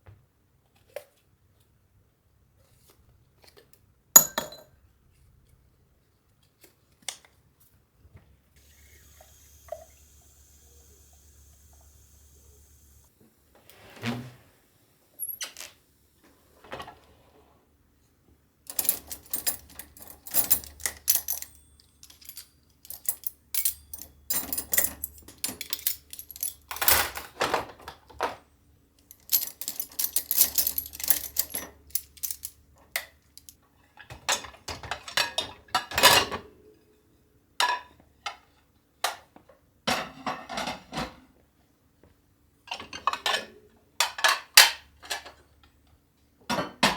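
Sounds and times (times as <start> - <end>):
small objects clicking and clinking: 18.7 - 26.9, 29.0 - 32.6, 33.2 - 33.6.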